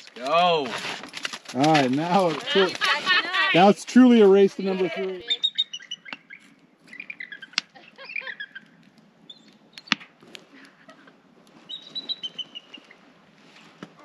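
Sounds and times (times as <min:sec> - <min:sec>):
bird chirping: 0:05.2 - 0:10.0, 0:11.7 - 0:13.0.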